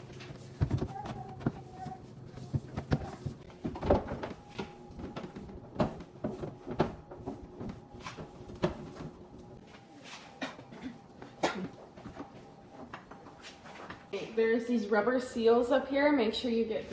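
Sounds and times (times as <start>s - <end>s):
refrigerator shelves clattering: 0.0s - 9.4s.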